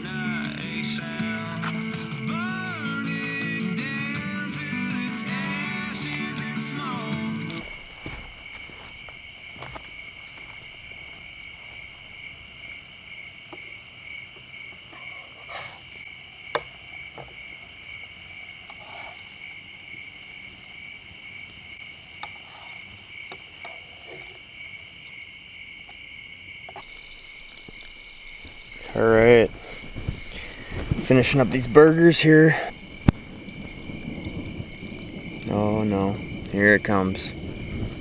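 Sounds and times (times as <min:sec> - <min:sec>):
sharp pops: 0:00.0 - 0:12.4, 0:26.8 - 0:38.0
crickets and insects trilling: 0:00.0 - 0:38.0
pulsing insect chirp: 0:00.0 - 0:38.0.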